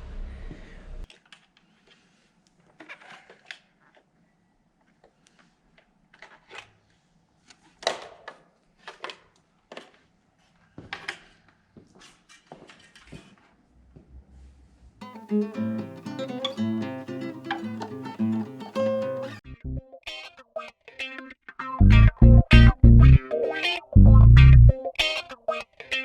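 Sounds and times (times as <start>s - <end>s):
low hum: 19.5s - 19.8s, 21.8s - 23.2s, 24.0s - 24.7s.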